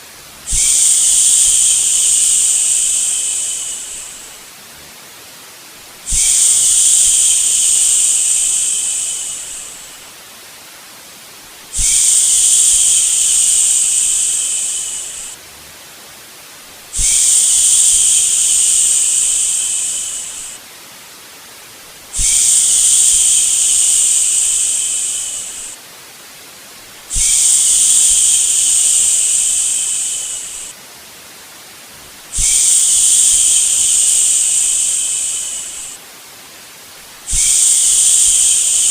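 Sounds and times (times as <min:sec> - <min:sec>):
soft white noise hiss: 0:00.0 - 0:38.9
person shushing: 0:00.5 - 0:04.4, 0:06.1 - 0:10.0, 0:11.8 - 0:15.4, 0:17.0 - 0:20.6, 0:22.2 - 0:25.8, 0:27.1 - 0:30.7, 0:32.4 - 0:36.0, 0:37.3 - 0:38.9.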